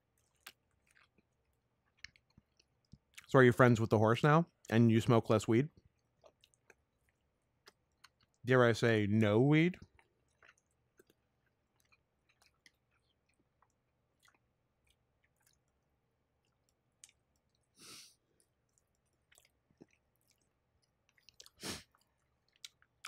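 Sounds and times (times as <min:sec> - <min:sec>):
wet mouth clicks from chewing: 0:00.1 - 0:03.3, 0:05.8 - 0:08.4, 0:09.8 - 0:17.7, 0:18.4 - 0:23.0
breathy puff: 0:17.8 - 0:18.2, 0:21.6 - 0:21.9.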